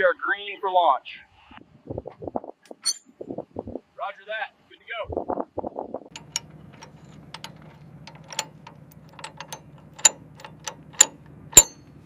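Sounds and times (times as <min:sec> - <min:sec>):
sharp clicks and clinks of fasteners: 0:06.1 - 0:12.0.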